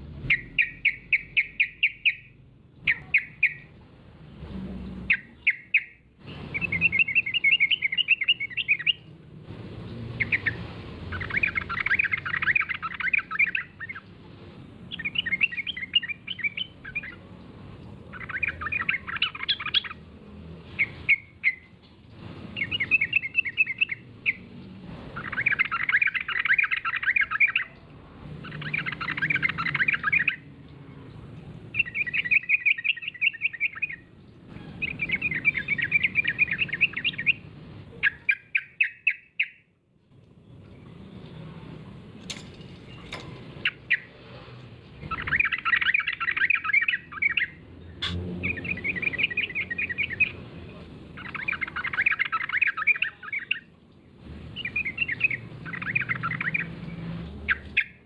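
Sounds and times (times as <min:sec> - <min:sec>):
bird singing chattering phrases: 0:00.3 - 0:03.7, 0:05.0 - 0:09.1, 0:10.2 - 0:14.2, 0:14.9 - 0:20.0, 0:22.5 - 0:24.5, 0:25.1 - 0:31.1, 0:31.7 - 0:39.7, 0:45.0 - 0:53.8, 0:54.5 - 0:58.0.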